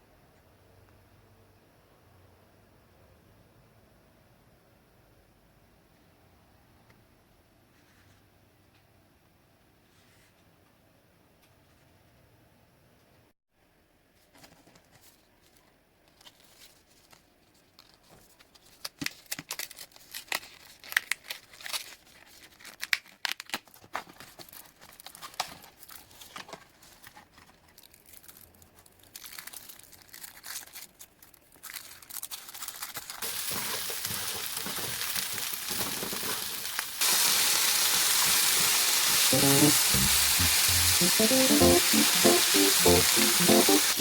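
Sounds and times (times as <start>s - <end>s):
packaging crinkling and tearing: 14.4s - 37.3s
steady hiss: 33.2s - 44.0s.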